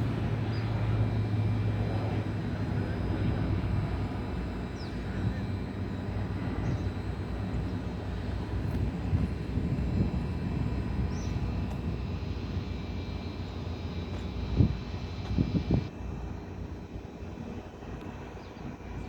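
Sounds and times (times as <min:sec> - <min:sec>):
turboprop engines running: 0:00.0 - 0:19.0.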